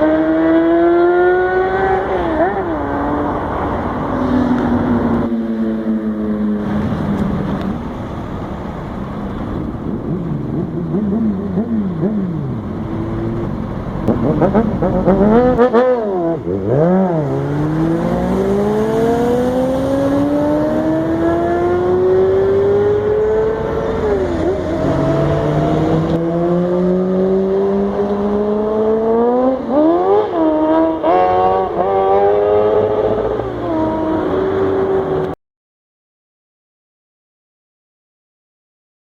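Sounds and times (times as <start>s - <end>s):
motorcycle engine revving: 0.0s - 3.4s, 9.8s - 35.4s.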